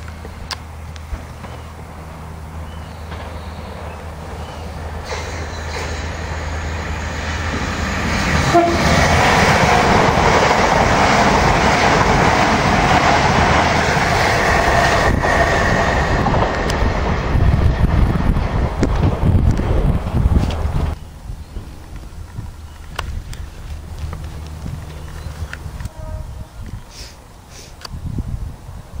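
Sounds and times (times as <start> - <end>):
electric train passing at speed: 0.0 - 29.0
train horn note: 8.4 - 9.2, 25.8 - 26.8.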